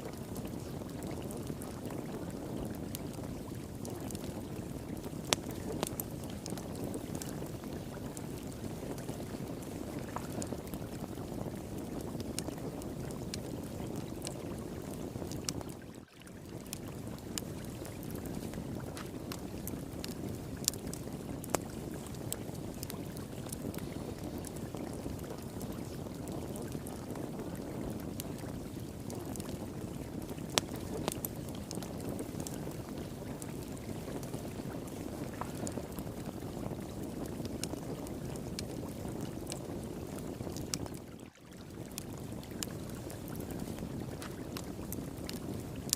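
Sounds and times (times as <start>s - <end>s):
flowing water: 0.0s - 45.9s
wood fire crackling: 0.0s - 45.9s.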